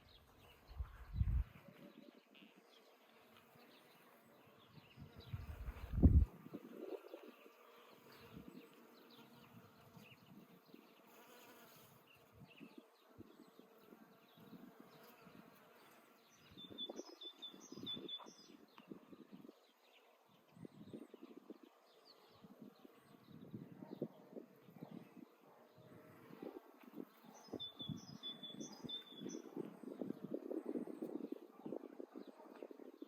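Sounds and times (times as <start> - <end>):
flying insects buzzing: 2.2 - 17.7
small bird chirping: 16.3 - 19.4, 27.2 - 30.0.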